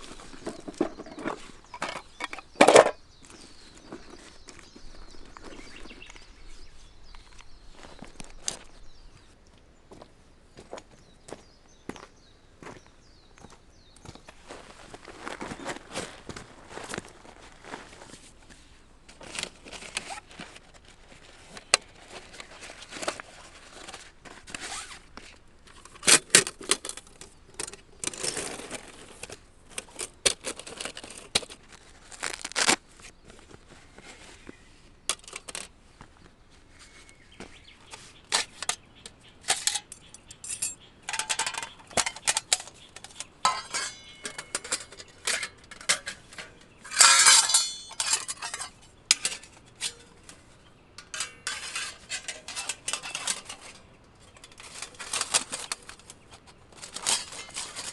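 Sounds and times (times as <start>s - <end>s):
camp gear rustling: 0.0s - 9.2s, 12.8s - 57.9s
metallic clinks: 39.6s - 42.2s.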